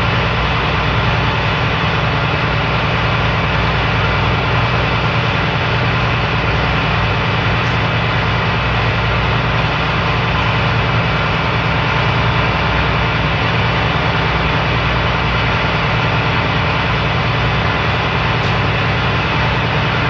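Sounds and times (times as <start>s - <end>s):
ship engines humming and rumbling: 0.0s - 20.0s.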